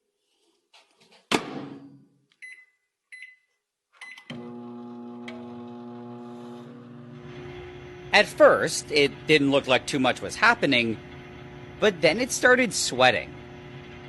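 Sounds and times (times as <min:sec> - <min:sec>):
keypad beeps: 0:02.4 - 0:04.3
microwave oven humming: 0:04.3 - 0:14.0.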